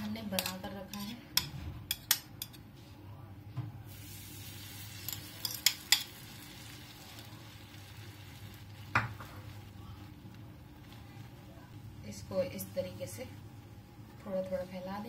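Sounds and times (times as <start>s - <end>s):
batter sizzling in a hot pan: 3.9s - 15.0s.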